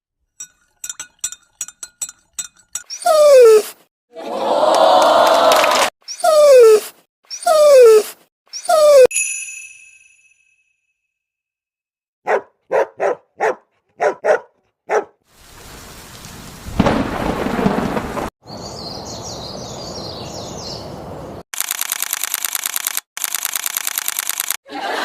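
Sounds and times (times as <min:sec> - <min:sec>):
high chirps: 0:06.1 - 0:10.4
steady rain: 0:15.3 - 0:18.3
thunderclap rumbling: 0:15.6 - 0:18.3
fast even clicking: 0:21.6 - 0:24.6.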